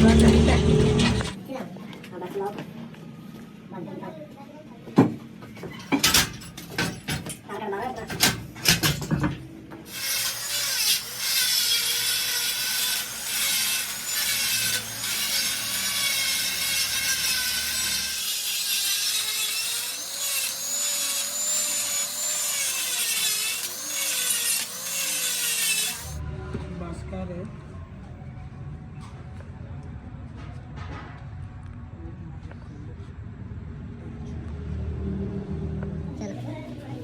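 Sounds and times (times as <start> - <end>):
power tool grinding metal: 0.0 - 1.4, 9.9 - 26.2.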